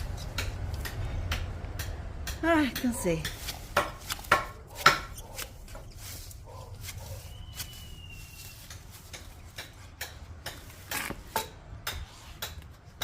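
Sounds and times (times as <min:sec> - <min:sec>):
faint thin whistle: 0:07.1 - 0:08.6.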